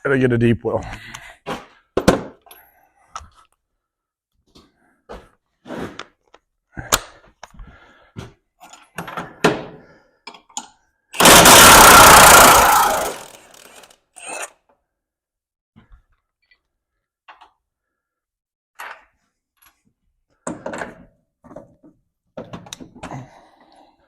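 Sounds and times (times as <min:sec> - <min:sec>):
impact wrench running: 0:11.2 - 0:13.9.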